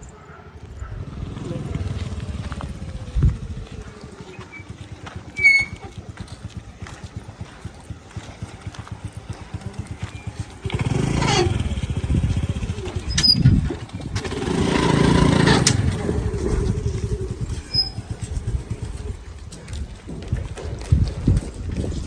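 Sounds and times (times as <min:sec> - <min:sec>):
motorcycle engine revving: 0:00.6 - 0:22.0.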